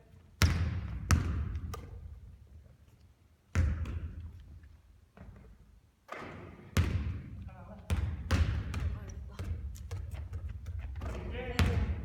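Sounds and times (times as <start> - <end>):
basketball bouncing on court: 0.4 - 2.3, 3.5 - 4.4, 6.1 - 12.0.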